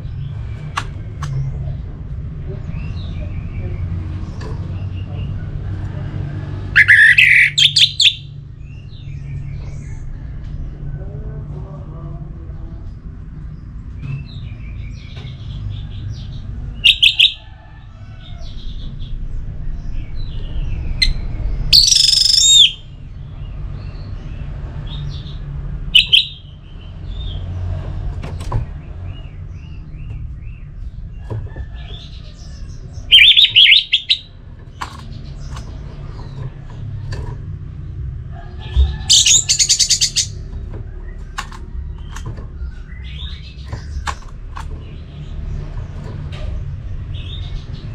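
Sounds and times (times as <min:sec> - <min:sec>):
thrush singing: 0:06.6 - 0:08.4, 0:31.8 - 0:37.0, 0:38.5 - 0:45.7
quieter bird calls: 0:06.7 - 0:10.3, 0:13.6 - 0:19.2, 0:20.0 - 0:27.4, 0:28.4 - 0:47.9.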